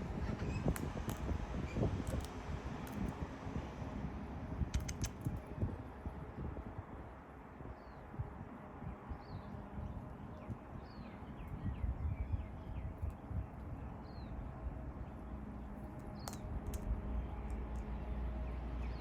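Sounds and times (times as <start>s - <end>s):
sharp click: 4.7s - 5.4s.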